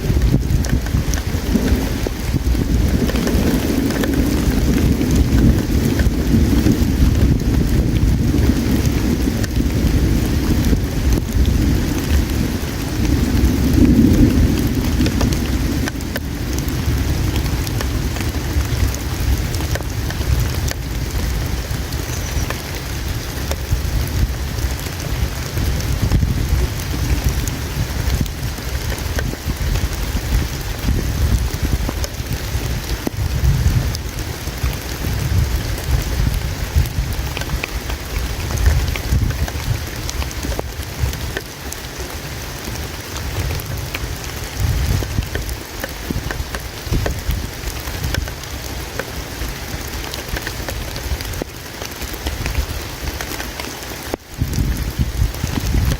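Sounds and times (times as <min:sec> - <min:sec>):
low rumble: 0:00.0 - 0:37.6
campfire crackling and popping: 0:00.0 - 0:55.9
river water flowing: 0:00.0 - 0:55.9.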